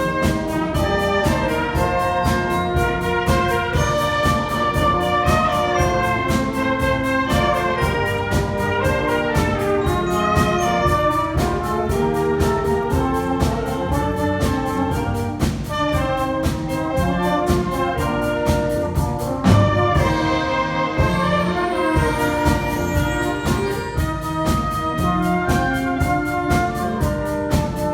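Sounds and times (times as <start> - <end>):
loud low drum hit: 0.0 - 21.4
wind band playing: 0.0 - 27.9.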